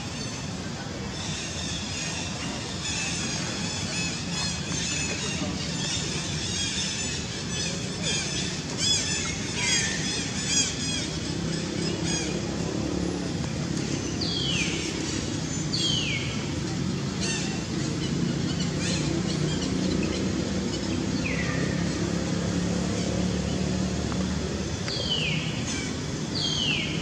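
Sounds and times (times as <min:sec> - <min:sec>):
low outdoor hum: 0:00.0 - 0:27.0
birds chirping and whistling: 0:13.8 - 0:16.5, 0:17.2 - 0:23.8, 0:24.9 - 0:27.0.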